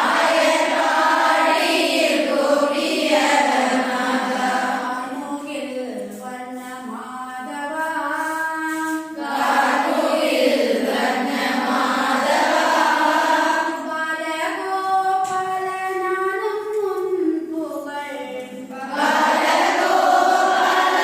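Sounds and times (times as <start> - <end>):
voices singing long held notes: 9.2 - 13.9, 18.7 - 21.0.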